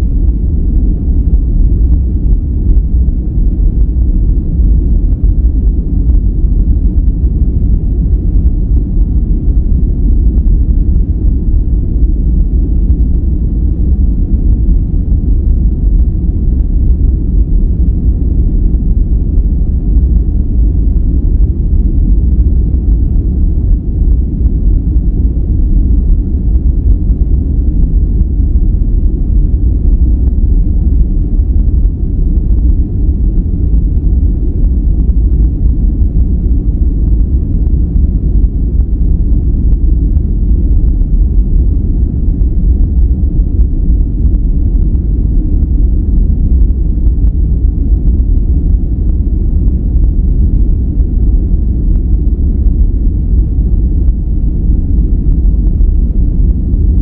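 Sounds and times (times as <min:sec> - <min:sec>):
deep brown noise: 0:00.0 - 0:57.0.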